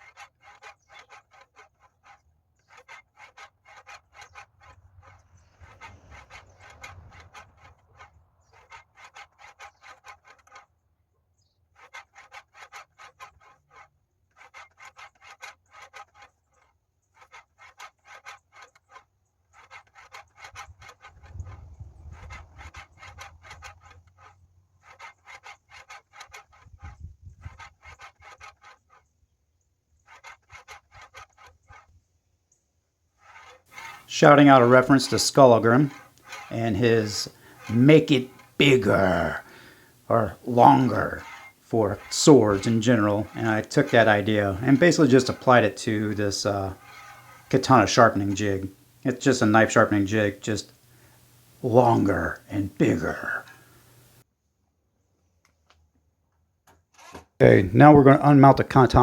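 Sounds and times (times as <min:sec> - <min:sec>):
sandpaper rasping on blade: 0:00.0 - 0:10.7, 0:11.7 - 0:29.1, 0:30.0 - 0:31.9, 0:33.2 - 0:54.2.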